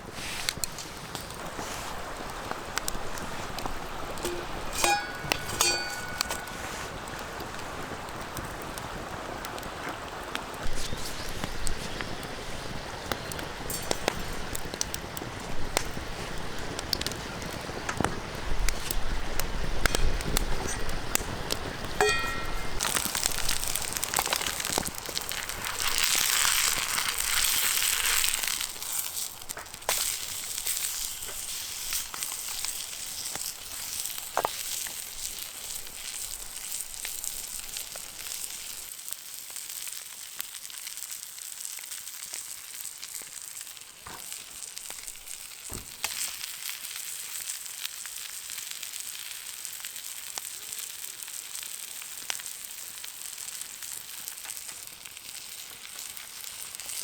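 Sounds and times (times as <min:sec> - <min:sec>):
food sizzling in a frying pan: 0:00.0 - 0:57.0.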